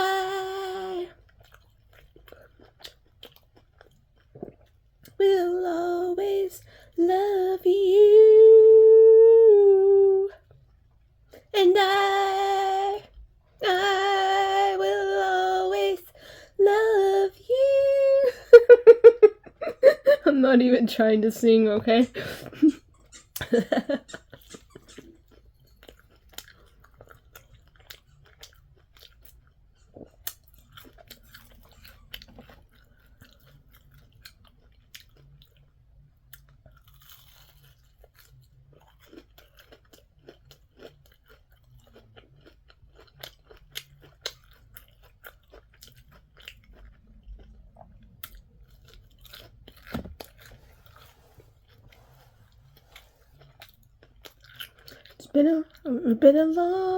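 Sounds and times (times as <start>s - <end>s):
person chewing crunchy food: 0.0s - 5.2s, 22.2s - 56.0s
person humming: 5.3s - 10.4s, 16.6s - 19.2s.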